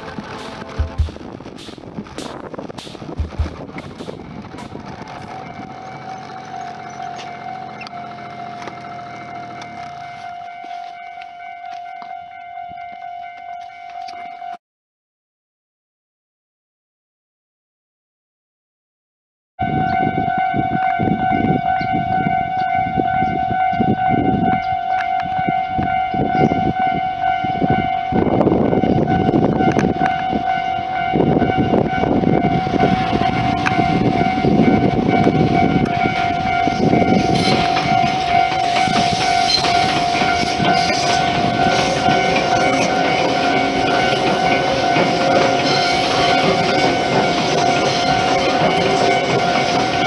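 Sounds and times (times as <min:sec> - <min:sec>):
train rumbling and clattering: 0:00.0 - 0:05.4, 0:31.3 - 0:50.0.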